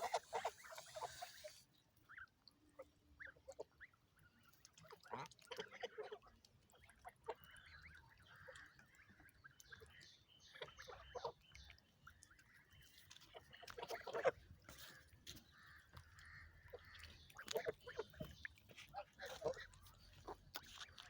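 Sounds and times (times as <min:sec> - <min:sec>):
geese honking: 0:00.0 - 0:01.6.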